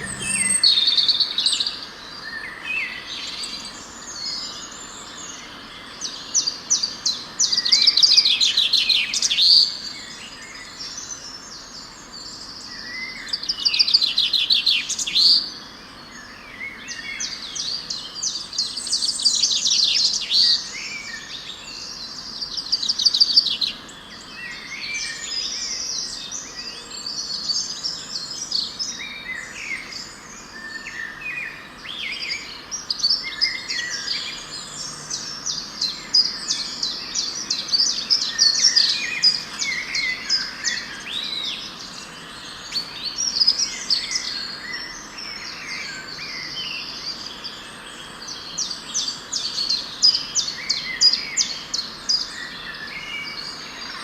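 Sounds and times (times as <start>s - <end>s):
birds chirping and trilling: 0.0s - 0.9s.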